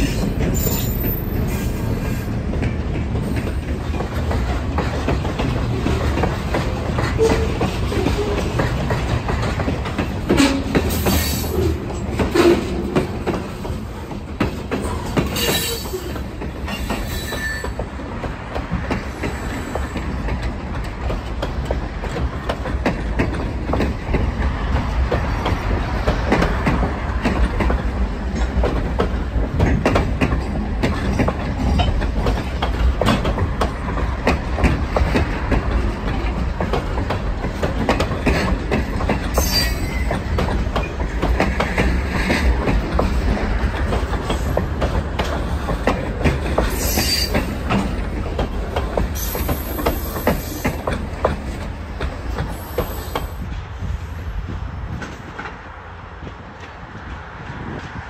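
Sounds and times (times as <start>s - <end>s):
clicks and clanks over rail joints: 0.0s - 53.5s
steel wheels rumbling on rail: 0.0s - 58.0s
high-pitched wheel squeals: 16.7s - 17.8s, 39.4s - 40.2s, 46.7s - 47.4s.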